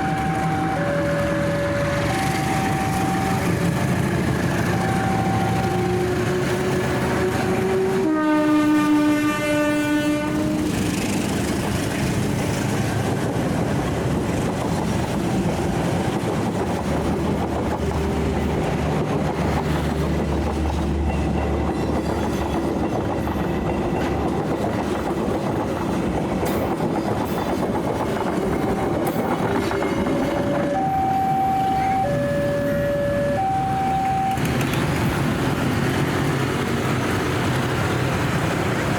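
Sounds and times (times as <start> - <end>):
two-tone warning sound: 0.0 - 7.6, 28.6 - 35.2
train rumble: 0.0 - 38.9
wheels clacking over rail joints: 10.6 - 38.9.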